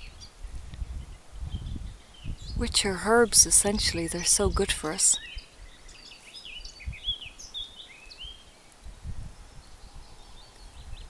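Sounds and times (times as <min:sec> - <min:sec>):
wind rumble on microphone: 0:00.0 - 0:07.5, 0:08.2 - 0:11.0
small songbirds chirping: 0:00.0 - 0:11.0.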